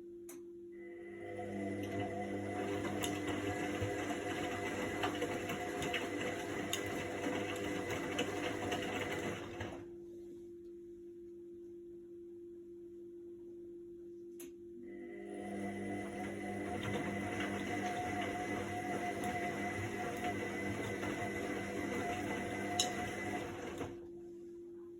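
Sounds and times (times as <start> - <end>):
washing machine drum turning: 16.4 - 24.0.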